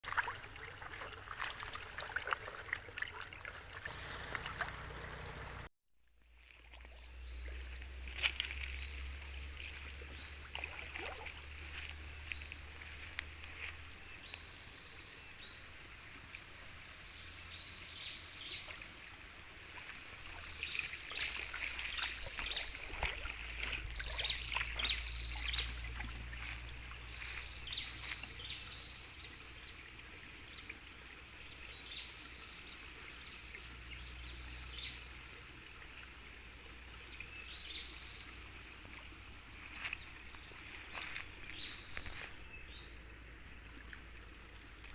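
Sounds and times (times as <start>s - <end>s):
water wading and splashing: 0.0s - 5.7s, 6.3s - 44.9s
low steady rumble: 3.9s - 5.7s
bird chirping: 20.3s - 29.0s.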